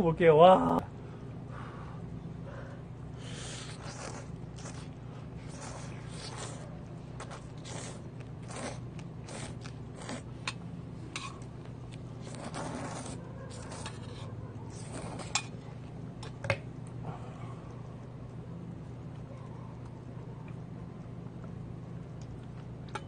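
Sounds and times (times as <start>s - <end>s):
noodle slurping: 3.2s - 10.5s, 12.1s - 15.5s
chewing: 3.4s - 10.6s, 11.2s - 16.4s.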